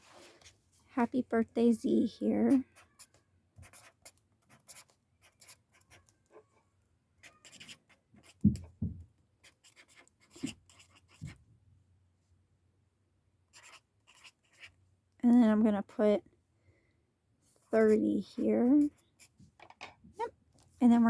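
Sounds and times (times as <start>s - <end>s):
marker writing on paper: 2.4s - 6.1s, 7.2s - 8.7s, 9.4s - 11.4s, 13.5s - 14.8s, 17.8s - 19.4s.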